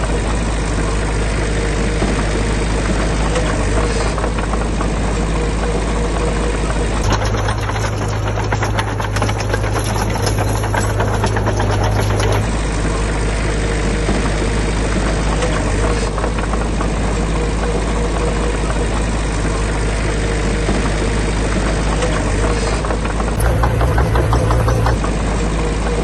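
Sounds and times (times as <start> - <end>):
diesel engine clattering: 6.9 - 13.1, 22.4 - 25.4.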